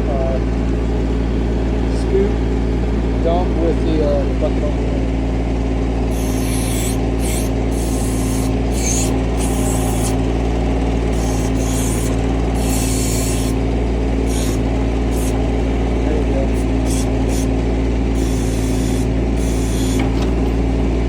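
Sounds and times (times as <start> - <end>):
tractor diesel engine running: 0.0 - 21.0
backhoe hissing scrape: 6.1 - 15.7, 16.4 - 20.4.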